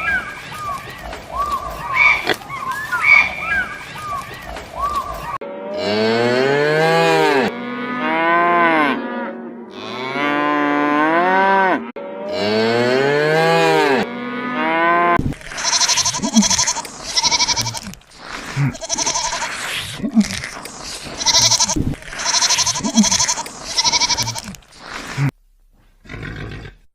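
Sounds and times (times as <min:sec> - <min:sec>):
cow mooing: 0:05.7 - 0:17.8, 0:21.1 - 0:24.5
goat bleating: 0:15.4 - 0:25.2.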